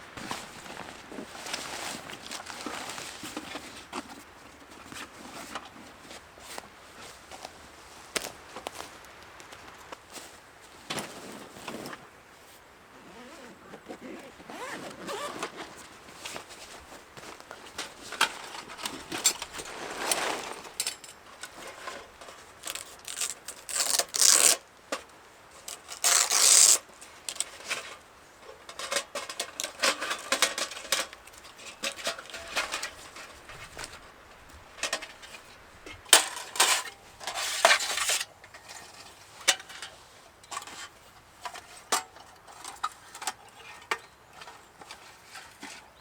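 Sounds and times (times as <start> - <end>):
gear clicks knocks and rustles: 0.1 - 12.1, 13.0 - 46.0
zipper pulled: 13.0 - 15.8.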